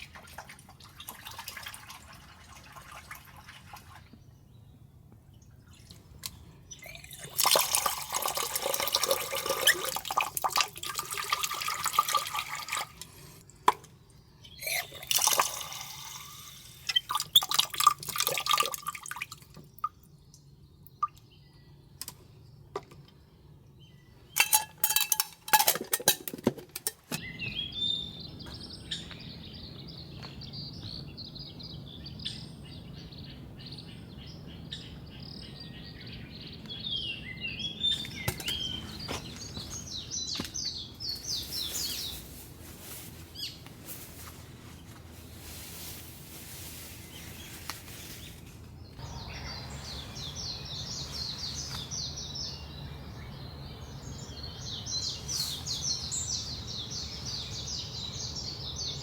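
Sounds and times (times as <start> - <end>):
birds chirping: 27.2 - 45.6, 46.9 - 59.0.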